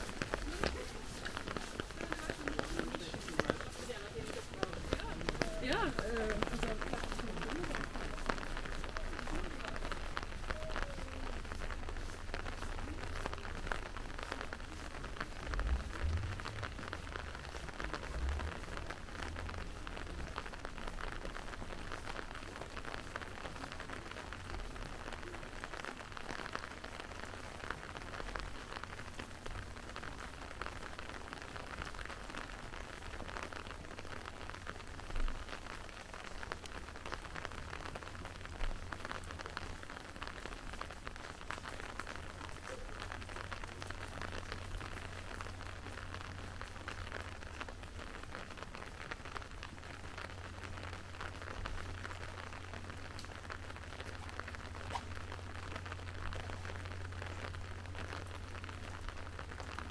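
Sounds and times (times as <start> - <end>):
steady rain falling: 0.0 - 59.9
low rumble: 12.8 - 21.0.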